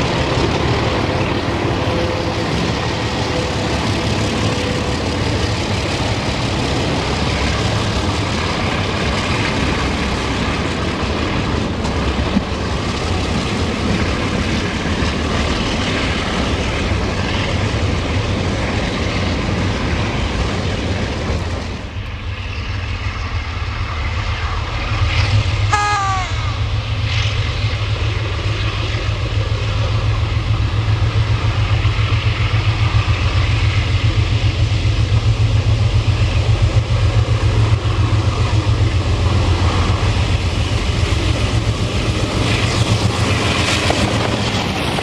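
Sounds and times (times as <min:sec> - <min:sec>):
diesel locomotive engine drone: 0:00.0 - 0:45.0
short pitched tone: 0:25.7 - 0:26.6.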